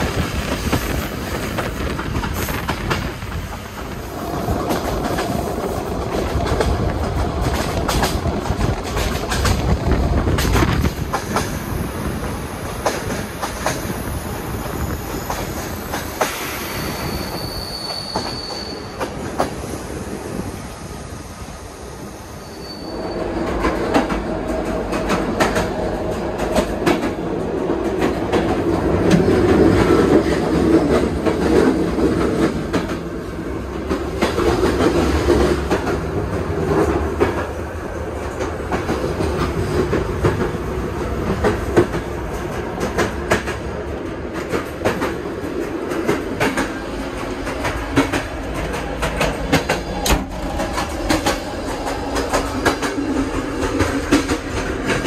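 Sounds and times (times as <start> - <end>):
train wheels clicking over rail joints: 0.0 - 19.7, 23.4 - 55.0
high wheel squeal: 16.4 - 19.0, 22.2 - 23.4.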